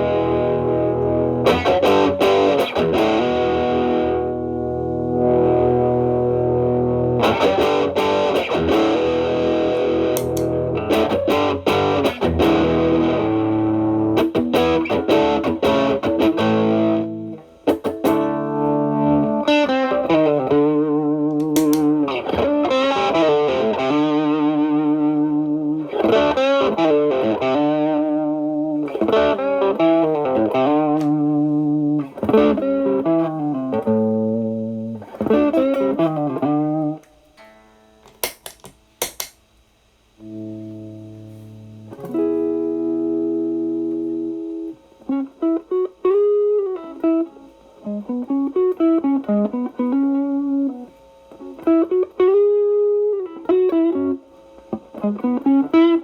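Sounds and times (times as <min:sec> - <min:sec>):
electric guitar chords and lead: 0:00.0 - 0:38.2, 0:40.2 - 0:56.0
clicks: 0:09.8 - 0:10.6, 0:21.3 - 0:22.0.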